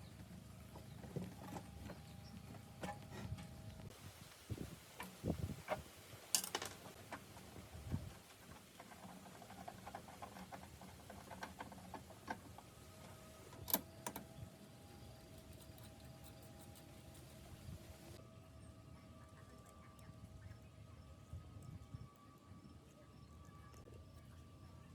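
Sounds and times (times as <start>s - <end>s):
tool parts clicking and knocking: 6.4s - 6.8s.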